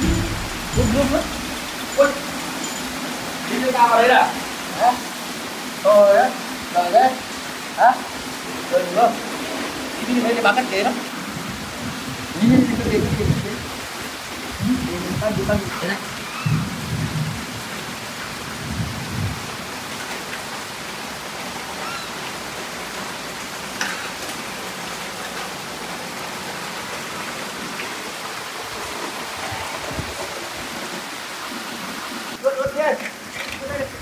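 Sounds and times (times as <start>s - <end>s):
low thunder rumbles: 0.0s - 2.0s, 16.4s - 17.7s, 18.6s - 19.5s
heavy rain falling: 0.0s - 34.0s.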